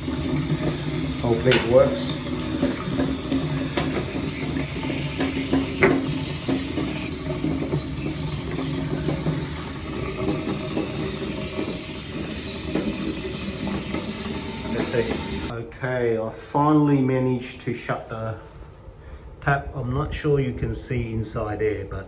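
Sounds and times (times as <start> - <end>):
water running from tap: 0.0 - 15.5
knock: 5.1 - 6.7.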